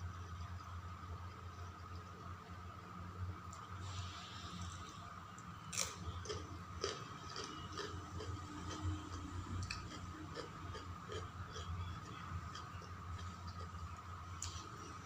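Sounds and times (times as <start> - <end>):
person chewing food: 5.7 - 14.9.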